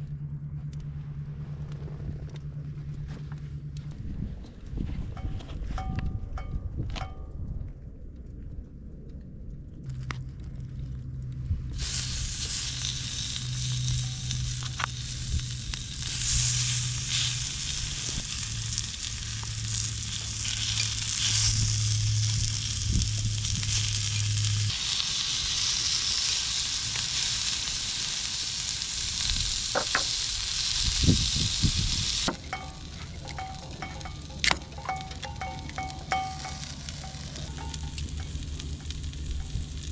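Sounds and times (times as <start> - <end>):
low steady hum: 0.0 - 24.9, 28.6 - 39.9
food sizzling: 11.8 - 39.9.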